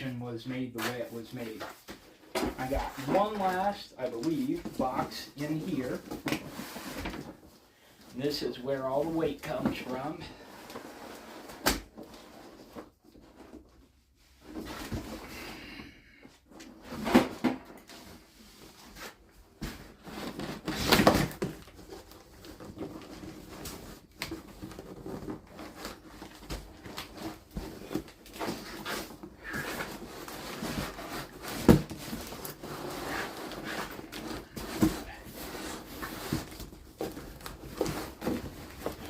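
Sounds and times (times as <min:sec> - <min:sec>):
cardboard box rustling and scraping: 0:16.7 - 0:39.0.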